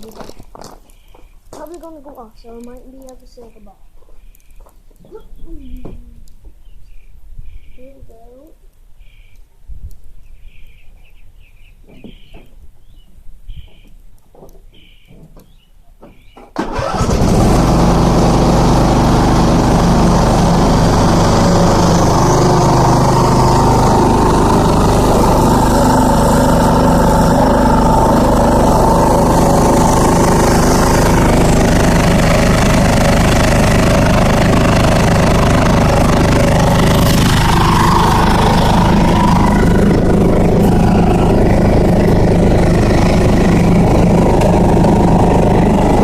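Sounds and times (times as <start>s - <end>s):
bird chirps: 0.8s - 1.4s, 3.3s - 8.0s, 9.0s - 9.4s, 10.2s - 14.0s, 14.7s - 16.5s
ride-on lawn mower engine running: 16.6s - 46.0s.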